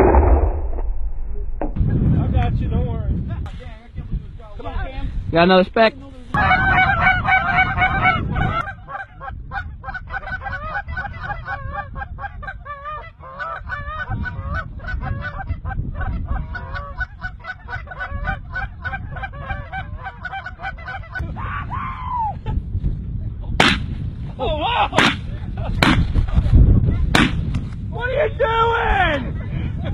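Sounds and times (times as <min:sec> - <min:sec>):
geese yelping and honking: 0:06.4 - 0:22.1.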